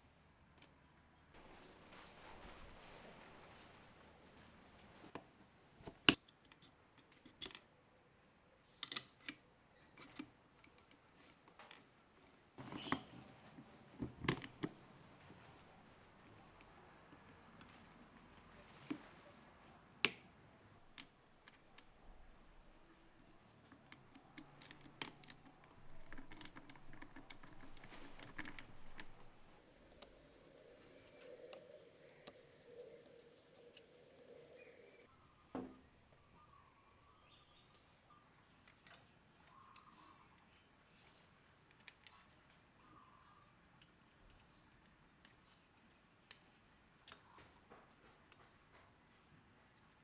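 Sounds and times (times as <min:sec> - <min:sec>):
small hard parts clicking: 0:22.9 - 0:30.2.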